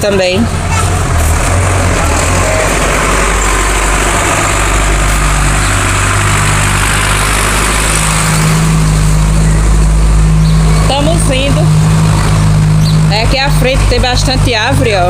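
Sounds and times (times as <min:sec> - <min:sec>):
vehicle engine running: 0:00.0 - 0:15.0
wind and road noise: 0:00.0 - 0:15.0.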